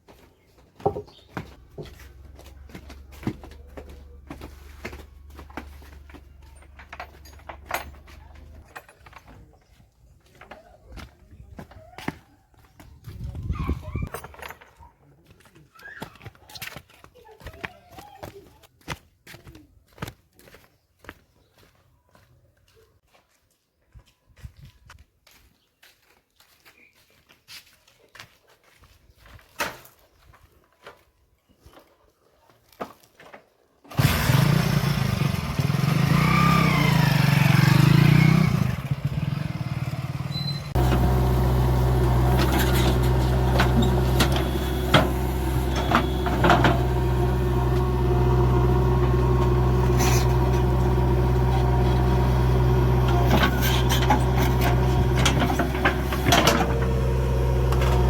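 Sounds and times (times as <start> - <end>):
heavy diesel engine running: 33.9 - 58.0.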